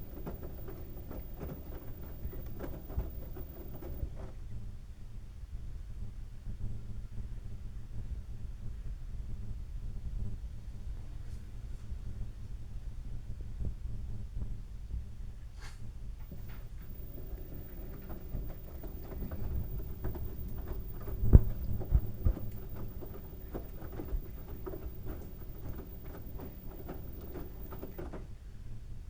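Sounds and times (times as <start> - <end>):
towels tumbling with knocks: 0.0 - 4.3, 16.2 - 28.3
washing machine drum turning: 0.0 - 4.3, 16.2 - 28.3.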